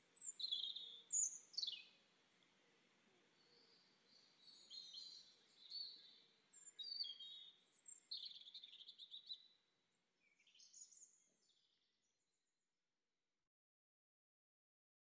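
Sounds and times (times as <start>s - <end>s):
outdoor background hiss: 0.0s - 10.5s.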